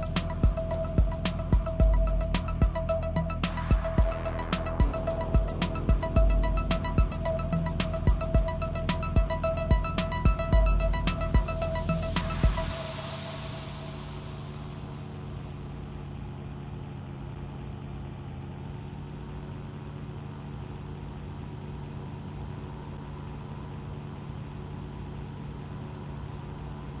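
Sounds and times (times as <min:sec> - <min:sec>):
aircraft engines humming: 0:00.0 - 0:16.4.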